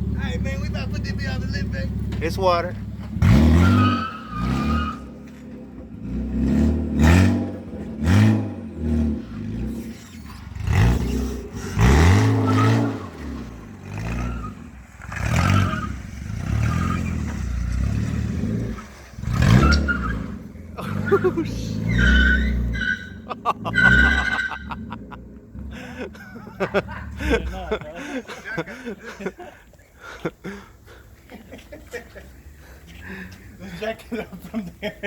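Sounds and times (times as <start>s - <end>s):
car engine revving: 0.0s - 27.8s.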